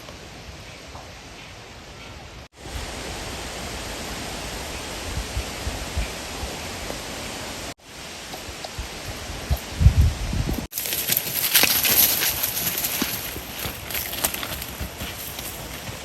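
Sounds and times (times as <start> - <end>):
wind rushing: 2.6 - 10.7
wind buffeting microphone: 2.6 - 16.0.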